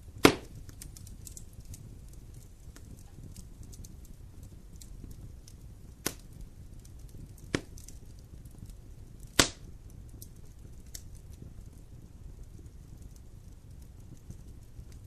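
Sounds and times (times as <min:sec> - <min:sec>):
burning wood popping: 0:00.0 - 0:15.0
campfire rumbling and crackling: 0:00.0 - 0:15.0.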